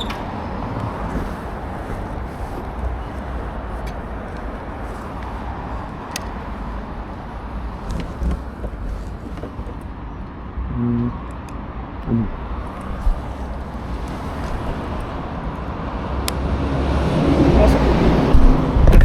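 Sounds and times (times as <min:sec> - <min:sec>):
faint clicks: 0:00.0 - 0:10.4
road traffic rush: 0:00.0 - 0:19.0.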